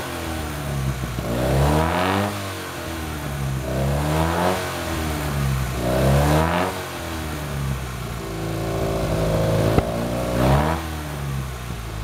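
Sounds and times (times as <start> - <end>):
car engine revving: 0.6 - 12.0.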